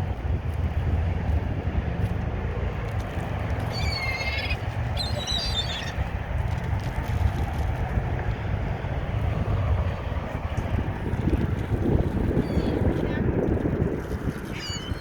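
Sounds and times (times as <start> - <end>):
wind buffeting microphone: 0.0 - 15.0
wavering bird calls: 3.6 - 6.1, 12.4 - 13.2, 14.5 - 15.0.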